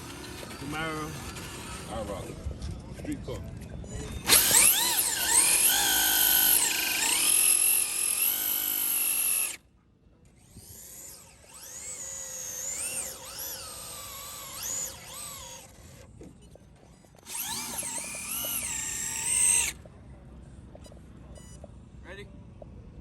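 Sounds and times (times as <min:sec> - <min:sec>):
electric motors whining: 0:00.0 - 0:02.5, 0:03.8 - 0:09.6, 0:10.3 - 0:19.9.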